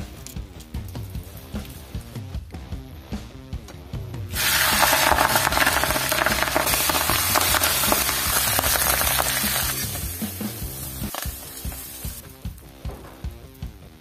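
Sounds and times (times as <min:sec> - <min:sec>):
greens sizzling in hot oil: 0:04.4 - 0:12.4.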